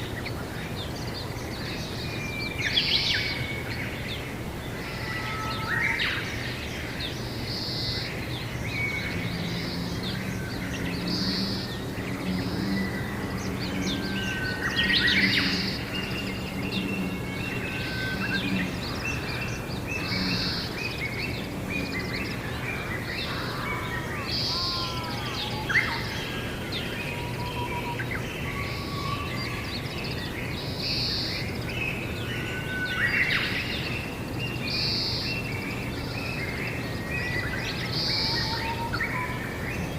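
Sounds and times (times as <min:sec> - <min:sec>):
wild birds chirping: 0:00.0 - 0:39.9
steady low hum: 0:07.1 - 0:23.1.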